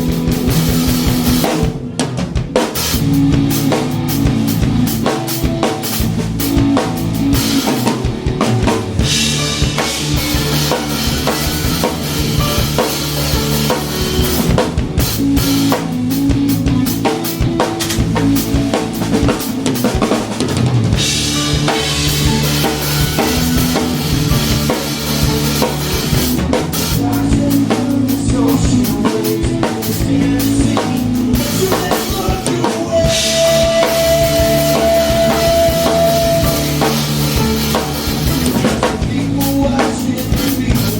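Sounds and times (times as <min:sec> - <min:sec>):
drum kit: 0:00.0 - 0:40.9
rock band playing live: 0:00.0 - 0:40.9
steady held note: 0:32.6 - 0:38.6.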